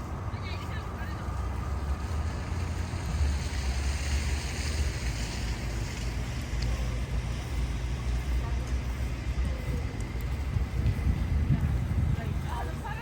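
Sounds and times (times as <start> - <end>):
wind on microphone: 10.2 - 13.0.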